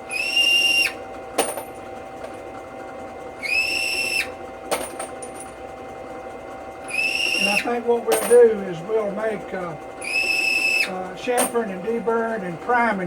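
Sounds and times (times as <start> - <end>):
high-pitched cutting whine: 0.0 - 1.0, 3.4 - 4.4, 6.8 - 13.0
drill press motor humming: 0.0 - 13.0.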